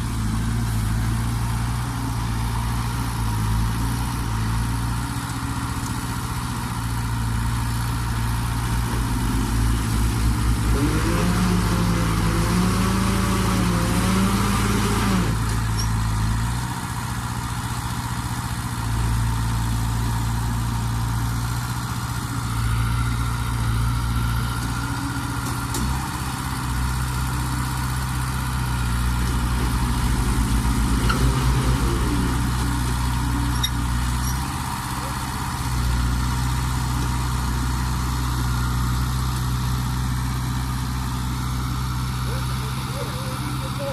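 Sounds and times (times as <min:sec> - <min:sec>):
heavy diesel engines running: 0:00.0 - 0:43.9
engine revving: 0:08.6 - 0:15.9, 0:22.3 - 0:43.9.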